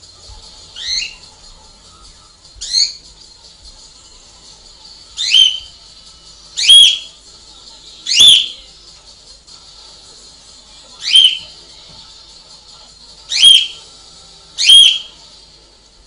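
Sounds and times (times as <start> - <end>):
pet bird shrill calls: 0.8 - 1.2, 2.6 - 3.0, 5.2 - 5.7, 6.6 - 7.1, 8.1 - 8.6, 11.0 - 11.5, 13.3 - 13.8, 14.6 - 15.2.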